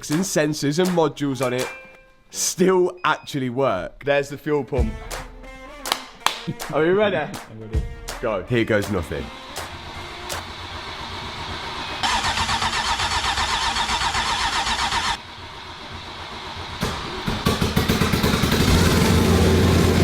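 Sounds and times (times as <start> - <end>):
car engine running: 9.3 - 20.0
engine cranking on starter: 9.3 - 20.0.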